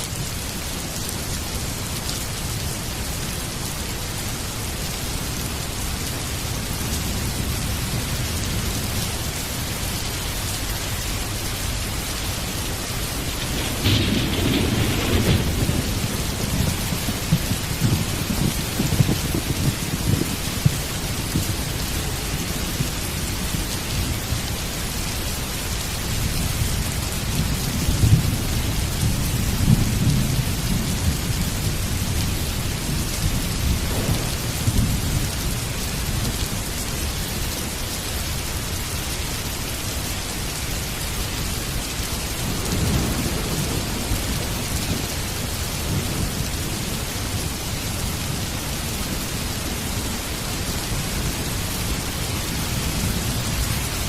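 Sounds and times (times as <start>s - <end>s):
heavy rain falling: 0.0s - 54.0s
low rolling thunder: 9.8s - 25.1s, 26.0s - 37.0s, 42.2s - 49.5s.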